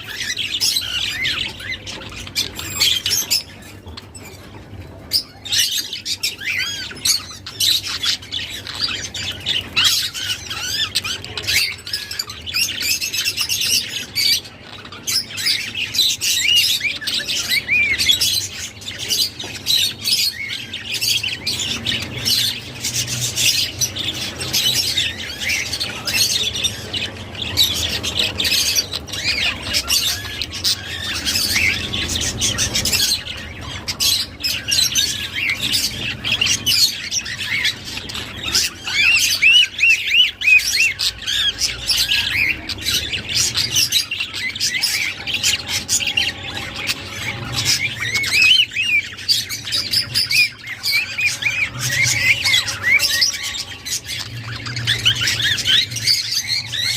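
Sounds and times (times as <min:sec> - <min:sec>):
budgerigars chattering and warbling: 0:00.0 - 0:56.9.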